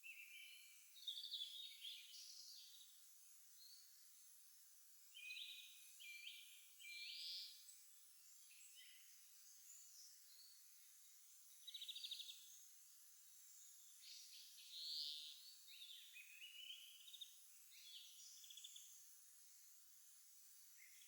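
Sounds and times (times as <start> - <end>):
songbirds singing: 0.0 - 3.0, 5.1 - 12.7, 13.4 - 19.0.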